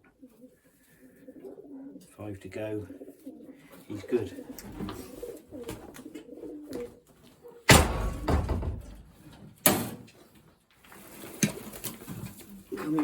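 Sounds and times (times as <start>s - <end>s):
sharp slams: 7.7s - 9.1s.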